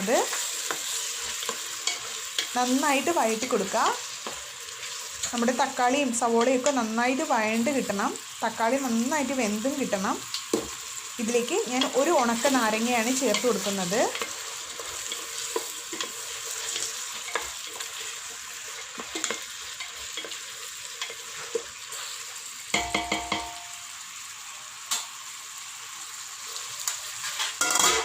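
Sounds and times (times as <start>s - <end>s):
spoon scraping pan: 0.0s - 6.9s, 11.6s - 22.4s, 26.8s - 28.0s
food sizzling in oil: 0.0s - 28.0s
spoon knocking on metal pan: 22.7s - 23.7s.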